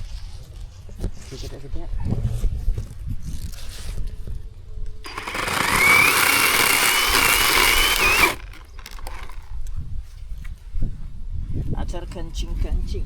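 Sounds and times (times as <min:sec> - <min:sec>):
electric chainsaw motor whine: 0:05.0 - 0:09.4.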